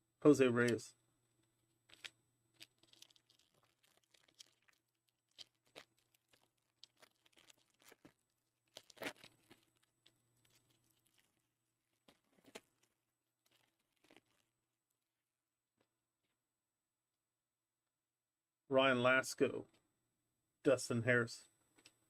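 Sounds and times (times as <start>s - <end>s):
foil wrapper crinkling and tearing: 1.9s - 14.5s.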